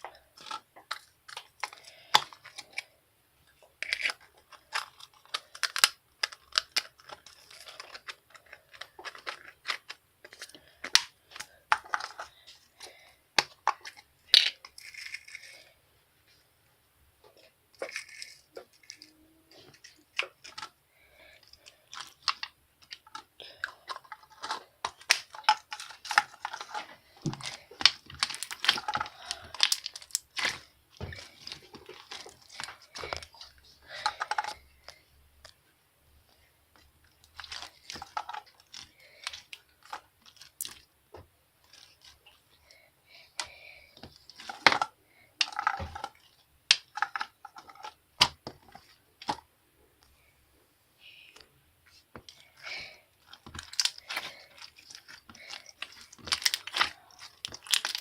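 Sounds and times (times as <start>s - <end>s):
crinkling and tearing handling noises: 0.0s - 16.4s, 17.2s - 35.7s, 36.3s - 50.2s, 51.4s - 58.0s.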